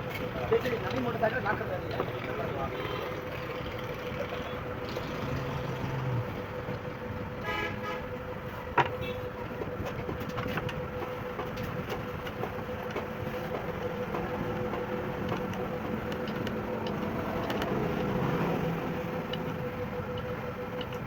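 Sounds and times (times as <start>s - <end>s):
vehicle hum: 0.0s - 21.0s.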